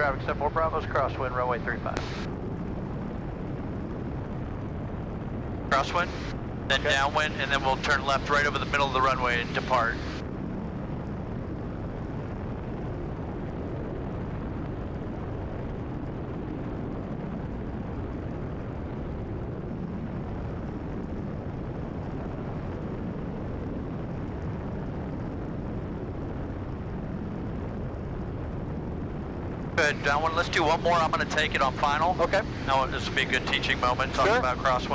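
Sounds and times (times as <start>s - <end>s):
plane engine and propeller drone: 0.0s - 34.9s.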